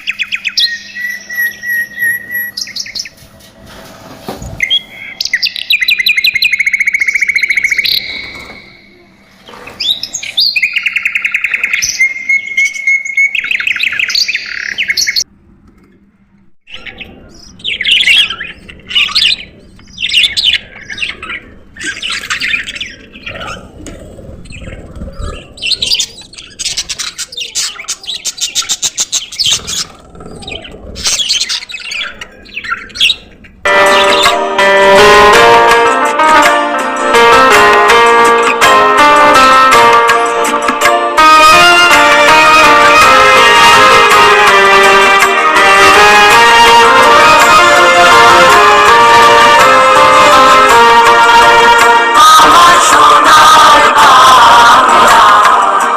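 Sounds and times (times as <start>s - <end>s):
trilling bird call: 0.0s - 3.2s, 4.6s - 9.0s
budgerigars chirping: 24.5s - 34.3s
music: 33.7s - 55.9s.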